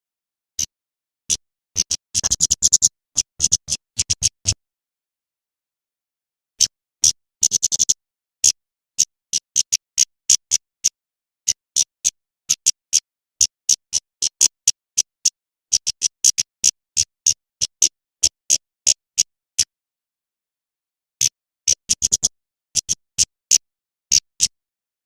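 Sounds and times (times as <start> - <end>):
bird chip calls: 1.3 - 4.6, 6.6 - 10.9, 21.7 - 24.6.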